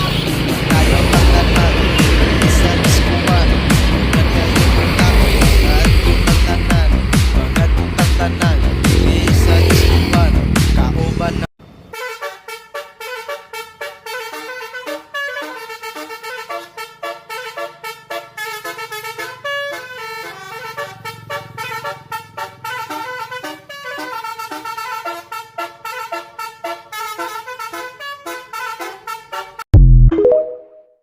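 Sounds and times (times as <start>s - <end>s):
truck musical horn melody: 0.0s - 29.6s
low engine hum: 0.4s - 11.5s.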